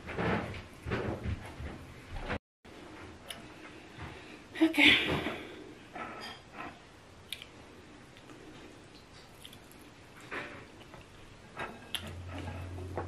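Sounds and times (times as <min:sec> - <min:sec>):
soft food squishes: 0:07.2 - 0:10.0
person chewing: 0:08.2 - 0:10.0.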